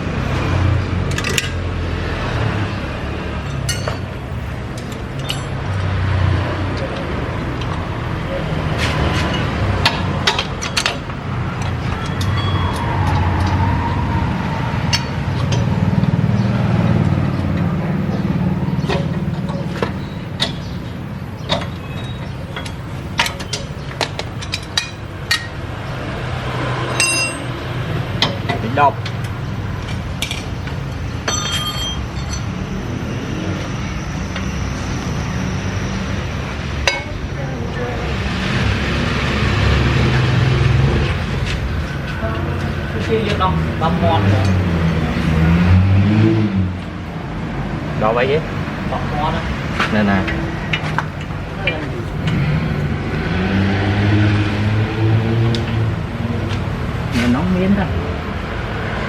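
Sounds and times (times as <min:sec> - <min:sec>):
low rumble of traffic: 0:00.0 - 0:59.0
metal tools clinking: 0:03.5 - 0:04.1, 0:04.8 - 0:05.6, 0:27.0 - 0:27.6, 0:31.2 - 0:32.6
metallic clicks and knocks: 0:21.5 - 0:25.6.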